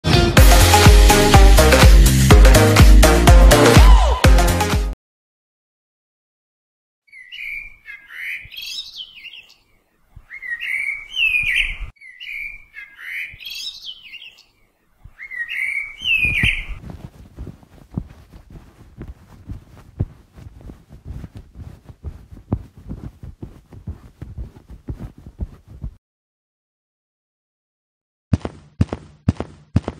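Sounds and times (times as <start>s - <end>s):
bird chirping: 7.1s - 16.8s.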